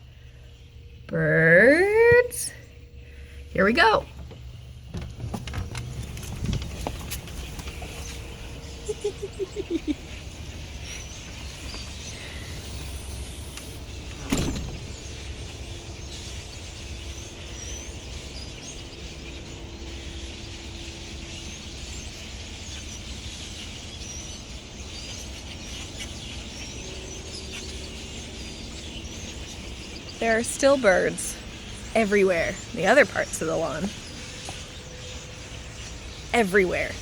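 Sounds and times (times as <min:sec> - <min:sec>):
steady low rumble: 0:00.0 - 0:20.0
blackbirds chirping: 0:00.0 - 0:37.0
loud thump: 0:14.2 - 0:15.1.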